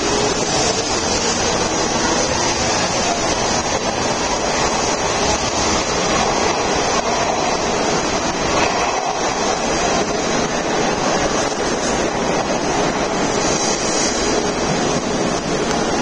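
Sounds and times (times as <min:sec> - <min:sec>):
train running noise echoing: 0:00.0 - 0:16.0.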